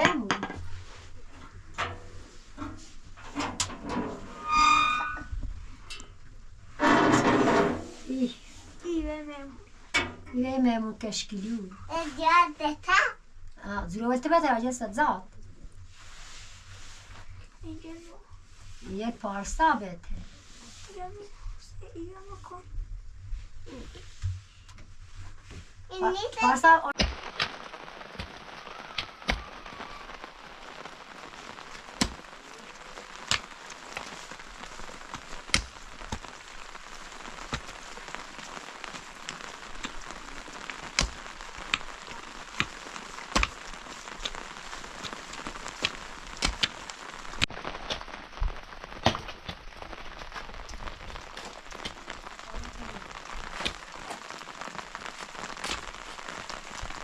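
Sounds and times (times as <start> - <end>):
close raindrops landing: 0.0 - 21.2, 23.6 - 57.0
heavy rain falling: 0.6 - 5.4, 6.8 - 9.6, 25.9 - 57.0.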